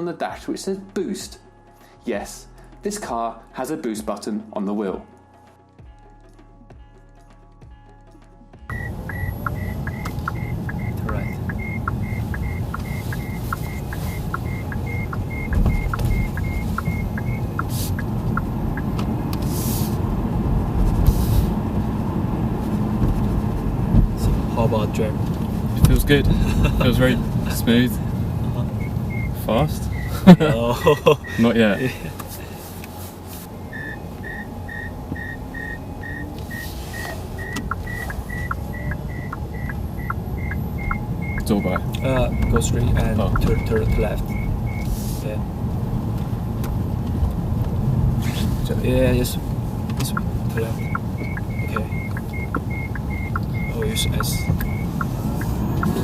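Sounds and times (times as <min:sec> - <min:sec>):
dashboard chime ticking: 0:08.7 - 0:19.0, 0:28.7 - 0:32.0, 0:33.5 - 0:44.9, 0:50.0 - 0:56.0
electronic warning beep: 0:08.7 - 0:19.0, 0:28.8 - 0:31.9, 0:33.5 - 0:45.0, 0:50.1 - 0:56.0
car road rumble: 0:08.7 - 0:56.0.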